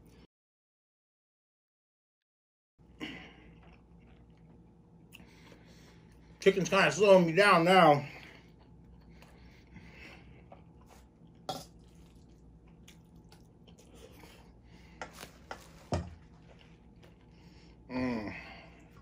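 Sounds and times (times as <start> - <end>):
soft chewing: 3.2 - 6.4, 8.2 - 17.9.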